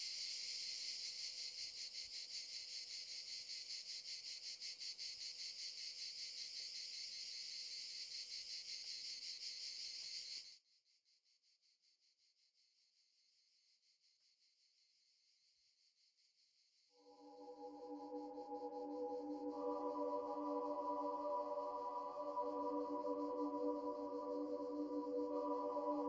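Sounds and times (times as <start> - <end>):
insects chirring: 0.0 - 10.6, 17.0 - 26.0.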